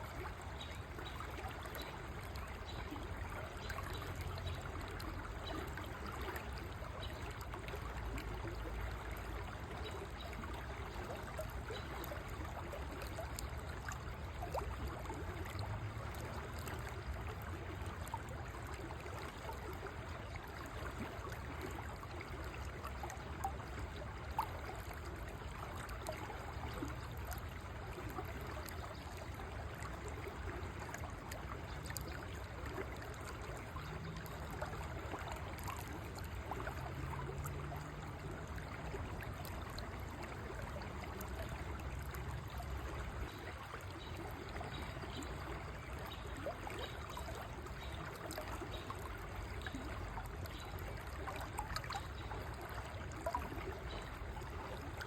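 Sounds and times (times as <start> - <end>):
river water flowing over stones: 0.0 - 55.0.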